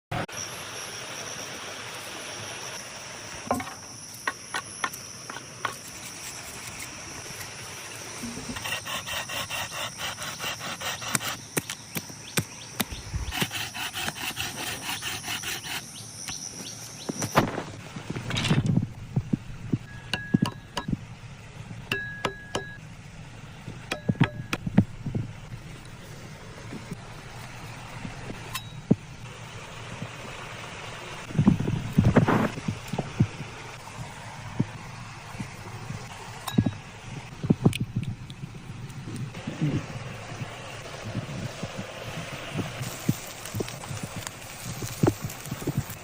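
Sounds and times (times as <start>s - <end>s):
high insect-like drone: 0.2s - 17.6s
sawing strokes on wood: 8.2s - 11.7s, 13.1s - 16.0s
knocks and taps: 20.1s - 21.0s.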